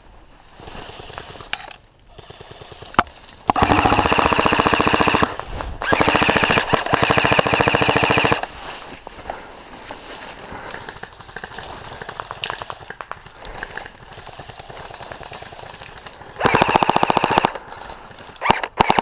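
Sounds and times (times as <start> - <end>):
rifle gearbox whining: 1.5 - 8.4
airsoft rifle rapid bursts: 2.1 - 8.5, 10.6 - 17.7, 18.4 - 19.0.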